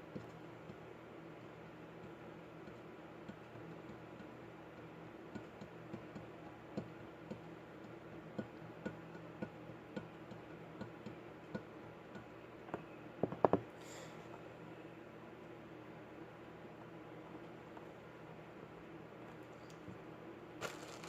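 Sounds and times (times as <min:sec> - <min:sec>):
low steady hum: 0:00.0 - 0:21.0
light clicks and taps: 0:00.1 - 0:00.8, 0:01.4 - 0:13.6.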